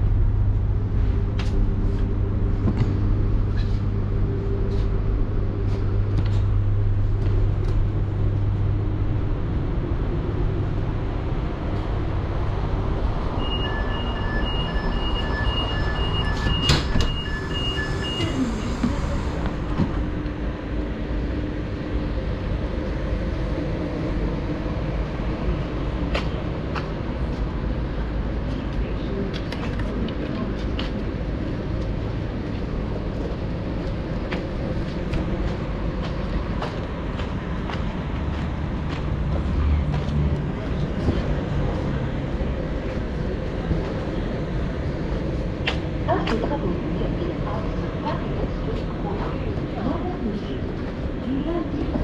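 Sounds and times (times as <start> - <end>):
train humming and rumbling: 0.0 - 52.0
electronic beeps: 13.4 - 18.8.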